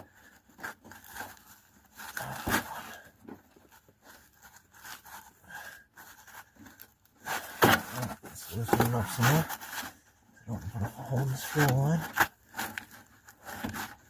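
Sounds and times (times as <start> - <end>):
hand tools clicking and scraping: 6.0 - 10.0.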